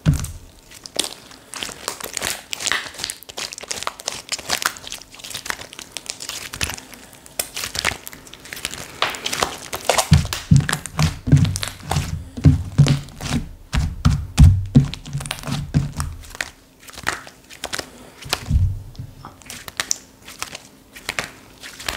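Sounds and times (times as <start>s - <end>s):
slime crackling and popping: 0.0s - 21.9s
soft low thuds of slime pressed: 18.4s - 19.2s.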